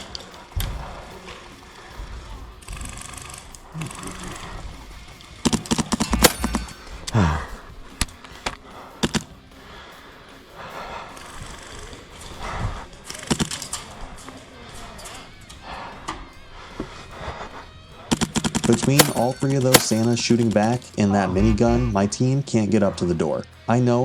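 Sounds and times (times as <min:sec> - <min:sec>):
airsoft guns firing: 0:05.2 - 0:06.9, 0:08.1 - 0:09.3, 0:13.1 - 0:13.9, 0:18.1 - 0:20.9.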